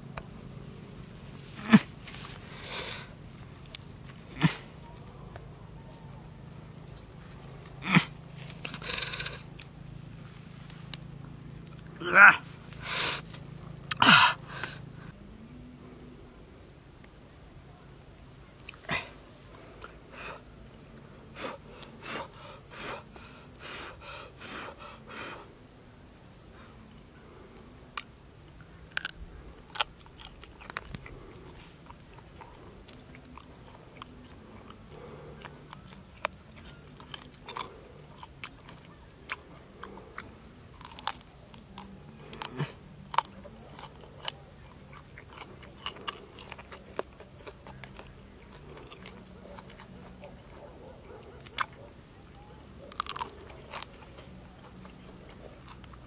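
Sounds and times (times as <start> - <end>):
crunching and chewing insects: 0.0 - 56.0
crisp clicks and crackles: 28.9 - 50.4, 52.8 - 56.0.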